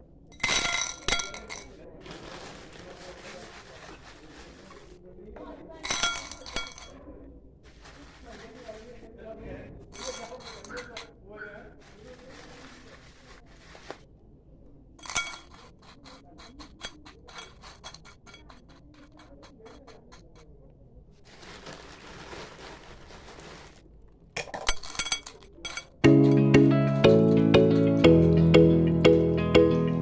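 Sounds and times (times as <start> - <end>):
gravel clinking and scraping: 0.4 - 4.9, 5.8 - 7.0, 9.9 - 11.1, 15.0 - 20.4, 24.4 - 26.3
music: 26.0 - 30.0.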